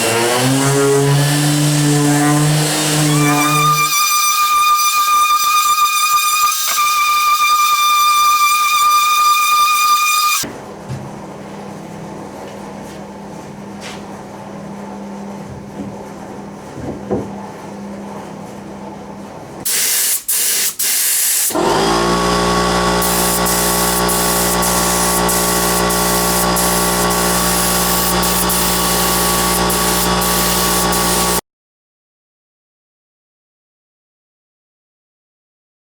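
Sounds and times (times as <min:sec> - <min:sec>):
motor spinning up buzzing whine: 0:00.0 - 0:10.4, 0:21.5 - 0:31.4
power tool high whine: 0:00.0 - 0:10.4, 0:21.4 - 0:31.4
loud hiss: 0:19.7 - 0:21.6, 0:23.0 - 0:31.4.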